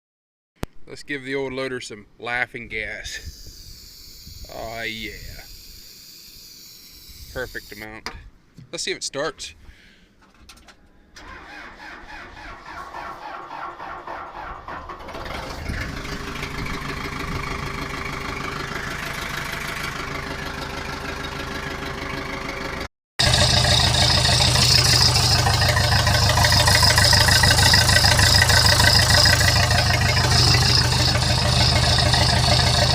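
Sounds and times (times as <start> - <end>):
diesel engine cranking and running: 11.2 - 32.9.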